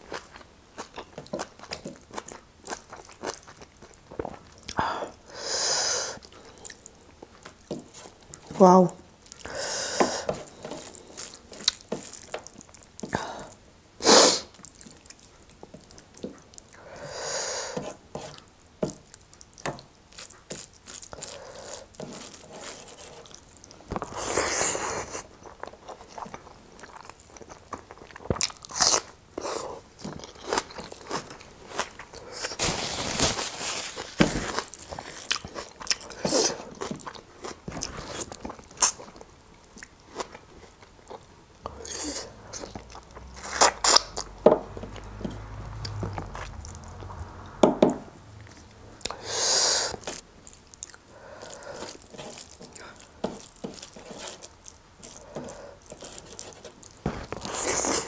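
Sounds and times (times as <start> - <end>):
person chewing food: 0.0 - 5.3, 6.2 - 8.5, 9.2 - 13.6, 14.5 - 47.6, 48.2 - 58.0.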